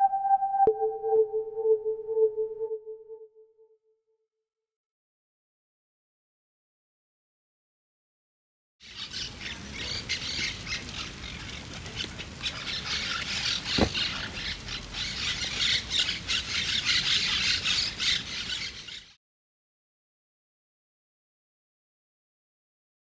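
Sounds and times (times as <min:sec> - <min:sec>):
birds squawking and chirping: 0:08.8 - 0:19.1.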